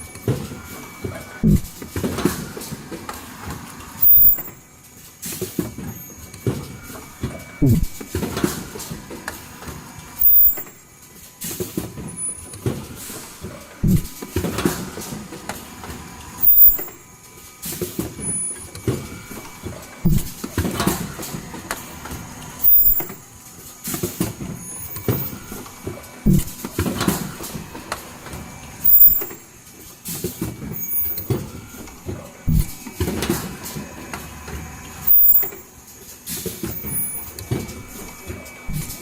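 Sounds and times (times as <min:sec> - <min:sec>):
mask machine running: 0:00.6 - 0:04.8, 0:06.6 - 0:11.0, 0:12.0 - 0:17.4, 0:18.2 - 0:36.0, 0:36.7 - 0:39.0
low thuds: 0:01.4 - 0:01.8, 0:07.6 - 0:08.1, 0:13.8 - 0:14.2, 0:20.1 - 0:20.4, 0:26.3 - 0:26.6, 0:32.5 - 0:32.8, 0:38.7 - 0:39.0.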